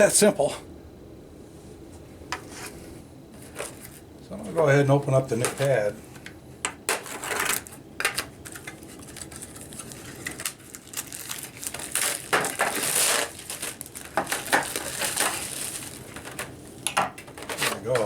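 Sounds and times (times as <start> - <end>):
packaging crinkling and rustling: 6.9 - 18.0.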